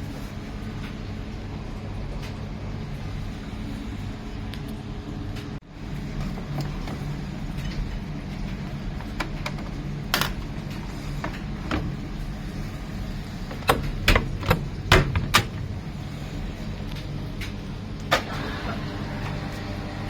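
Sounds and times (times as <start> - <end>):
washing machine humming: 0.0 - 20.0
sharp clicks and knocks: 13.5 - 15.8.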